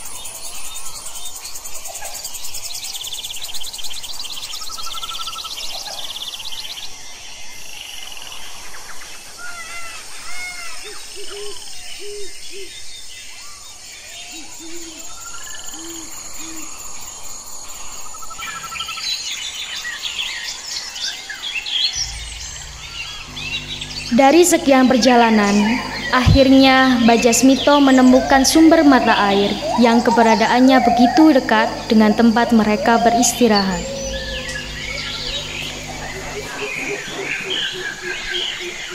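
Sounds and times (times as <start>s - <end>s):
high insect drone: 13.4s - 38.9s
birds chirping and trilling: 21.9s - 38.9s
low cooing notes: 22.0s - 37.8s.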